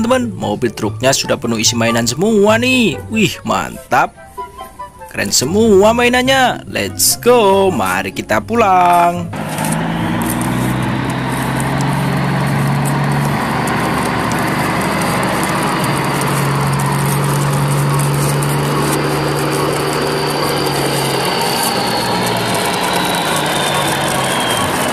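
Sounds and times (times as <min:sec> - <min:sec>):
truck engine running: 0:08.8 - 0:24.9
toy trucks rattling over paving: 0:09.5 - 0:24.9.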